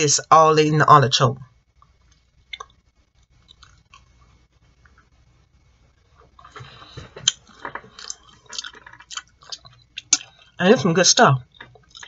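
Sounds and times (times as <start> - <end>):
wet chewing and lip-smacking: 1.8 - 2.8, 3.4 - 5.1, 6.2 - 10.6, 11.5 - 12.0.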